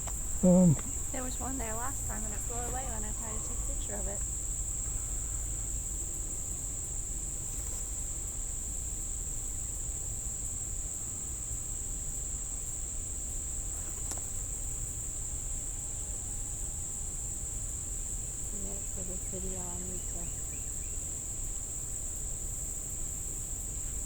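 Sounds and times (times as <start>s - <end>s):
low steady rumble: 0.0s - 13.6s
crickets chirping: 0.0s - 24.0s.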